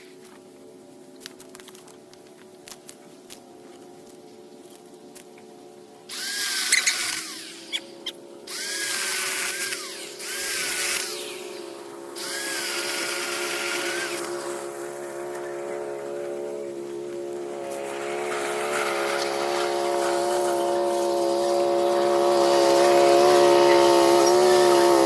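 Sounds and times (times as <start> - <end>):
steady motor hum: 0.0 - 25.0
power tool motor whine: 6.0 - 25.0.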